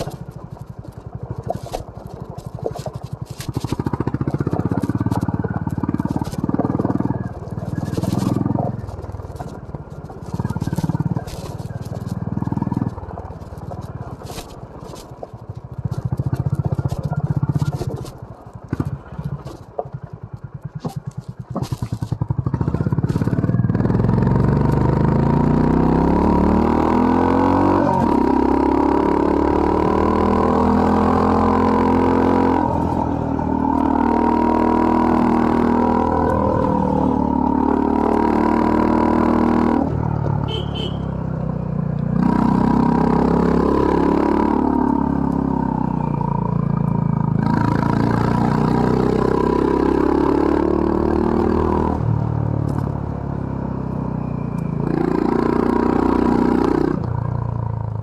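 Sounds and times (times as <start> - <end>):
sharp clicks and knocks: 0.0 - 23.4
motorcycle engine revving: 0.0 - 58.0.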